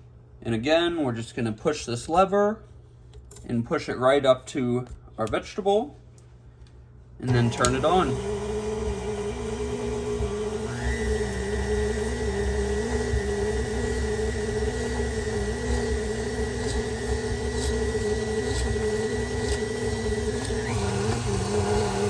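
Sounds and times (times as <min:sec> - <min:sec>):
stand mixer motor whine: 0:07.3 - 0:22.0.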